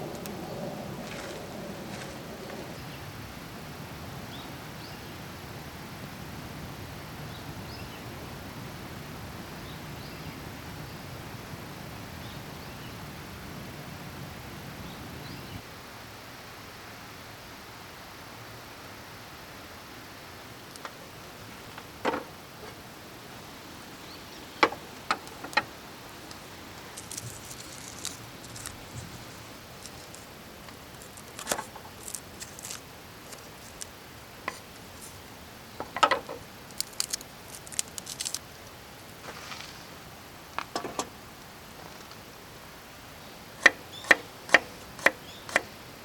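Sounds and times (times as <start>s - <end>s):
faint steady background noise: 0.0s - 46.0s
outdoor background hiss: 0.0s - 46.0s
sharp clicks and knocks: 35.8s - 38.4s, 40.6s - 41.1s, 43.6s - 45.7s
small birds chirping: 43.2s - 44.3s, 45.0s - 45.7s.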